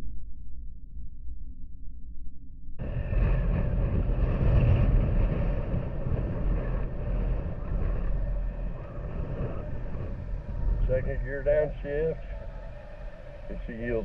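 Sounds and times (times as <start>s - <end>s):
wind and road noise: 2.8s - 14.0s.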